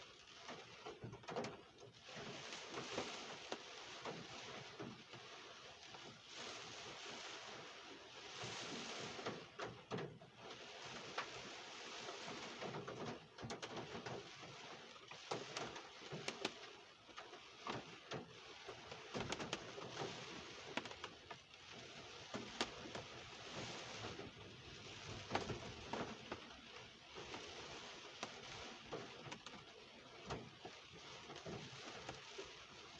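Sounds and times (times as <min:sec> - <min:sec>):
raindrops tapping surfaces: 0:12.2 - 0:32.8
rain hissing: 0:19.9 - 0:29.6.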